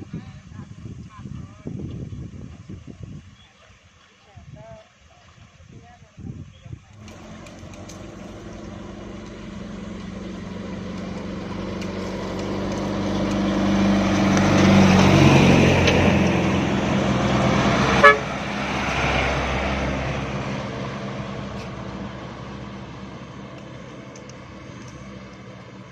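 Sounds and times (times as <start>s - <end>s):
truck engine under load: 7.0s - 25.9s
horn toot: 17.7s - 18.5s.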